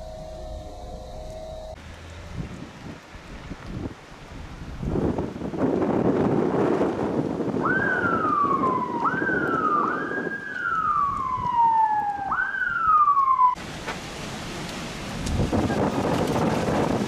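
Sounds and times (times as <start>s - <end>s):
emergency vehicle siren wailing: 0.0s - 2.5s, 7.5s - 13.6s
wind noise rumble: 0.0s - 17.0s.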